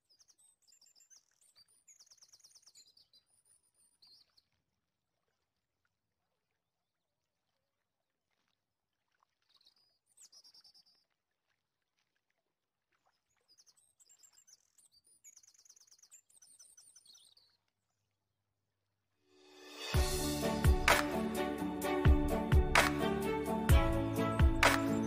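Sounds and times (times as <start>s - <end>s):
faint bird chirps: 13.1s - 17.7s
music: 19.4s - 25.0s.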